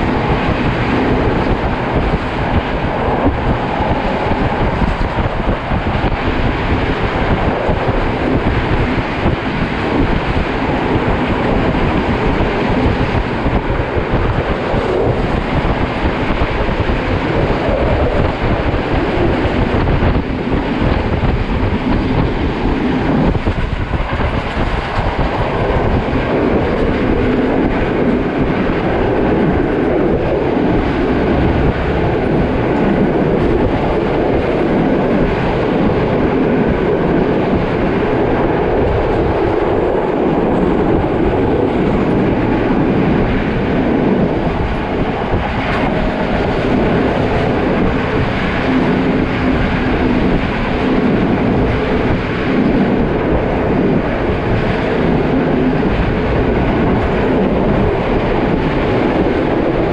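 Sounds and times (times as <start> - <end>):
train wheels rumbling and rattling: 0.0 - 59.9.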